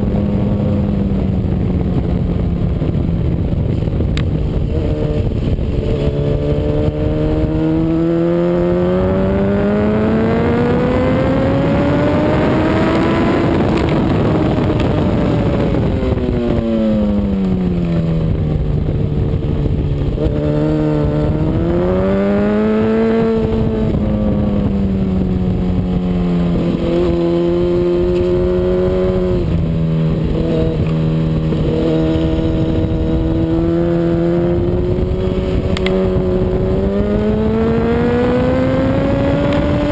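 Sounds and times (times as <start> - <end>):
motorcycle engine accelerating: 0.0 - 39.9
rushing wind noise: 0.0 - 39.9.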